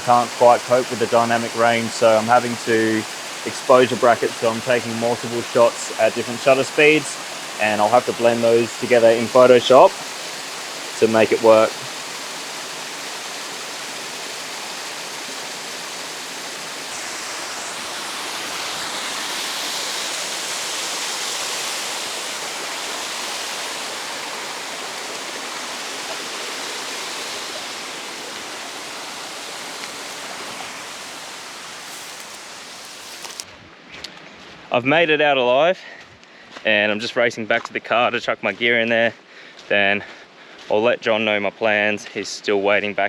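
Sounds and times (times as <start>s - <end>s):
waterfall rushing: 0.0s - 33.4s.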